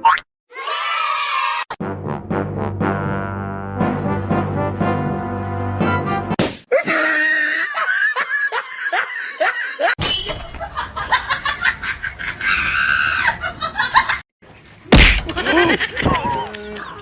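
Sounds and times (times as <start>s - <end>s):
shrieks and falling cries: 0.5s - 1.7s, 12.4s - 13.4s
laughter: 6.8s - 10.0s, 10.6s - 14.2s, 15.3s - 17.0s.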